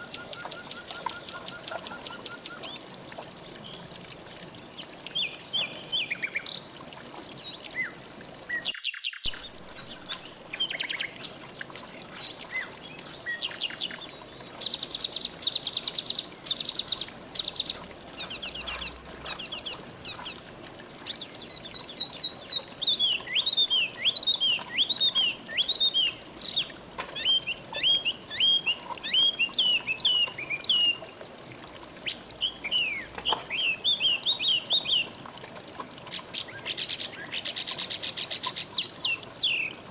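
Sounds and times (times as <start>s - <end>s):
songbirds chirping and trilling: 0.0s - 31.1s, 32.0s - 35.2s
river water flowing: 0.0s - 39.9s.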